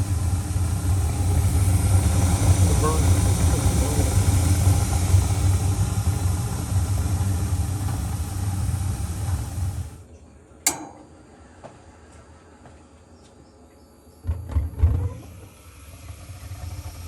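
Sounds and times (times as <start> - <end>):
gas furnace humming: 0.0 - 12.8, 14.4 - 17.0
sharp click: 10.7 - 11.2.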